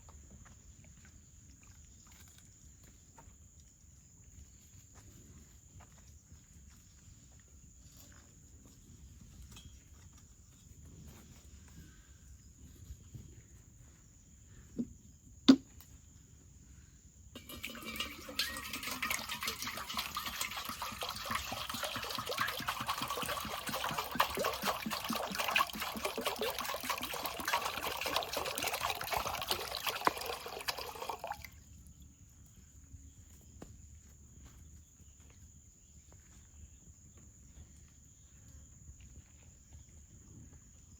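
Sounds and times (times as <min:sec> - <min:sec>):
liquid trickling and splashing: 0:17.4 - 0:31.6.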